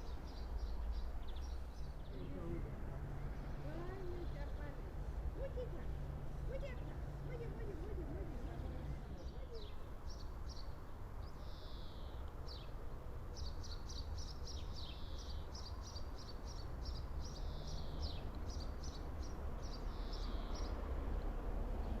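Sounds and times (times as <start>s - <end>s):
small songbirds singing: 0.0s - 22.0s.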